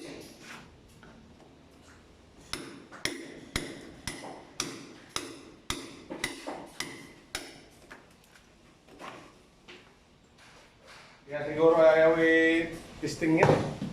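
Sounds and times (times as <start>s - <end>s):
hammer striking metal: 2.5s - 7.7s.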